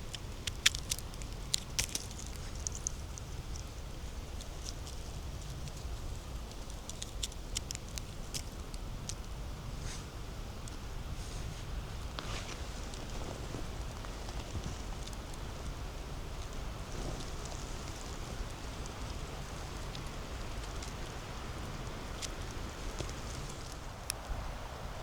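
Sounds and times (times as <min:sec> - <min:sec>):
twigs snapping: 0:00.1 - 0:03.7, 0:04.3 - 0:09.3.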